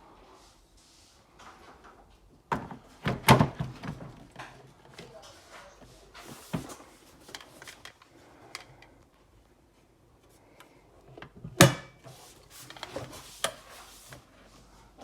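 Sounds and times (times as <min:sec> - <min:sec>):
light clicks and rustles: 0:04.2 - 0:09.3.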